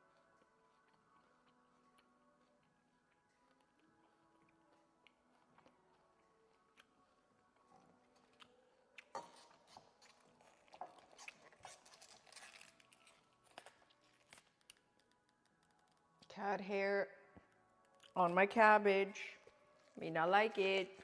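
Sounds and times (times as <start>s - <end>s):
person chewing cabbage: 0.0s - 16.3s.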